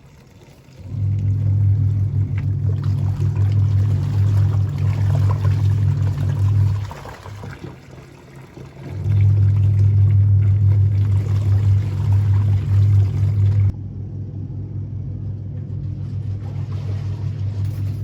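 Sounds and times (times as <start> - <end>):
running water: 0.0 - 13.7
low machine hum: 0.0 - 18.0.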